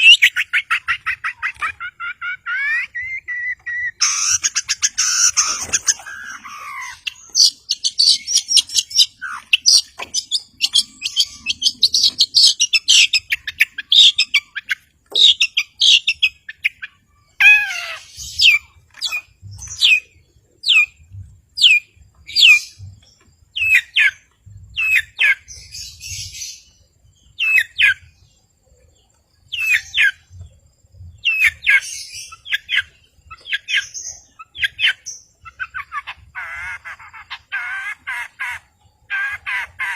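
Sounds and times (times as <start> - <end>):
bird chattering high notes: 0.0 - 14.6
bird calls sliding downward: 0.0 - 16.2.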